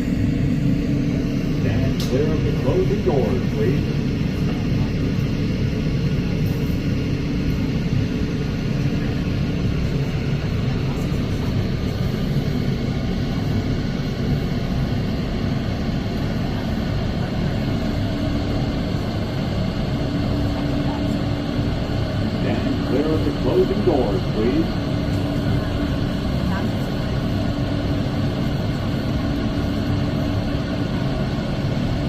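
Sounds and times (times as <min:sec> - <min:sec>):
droning hum: 0:00.0 - 0:32.0
subway car rumble: 0:00.0 - 0:32.0.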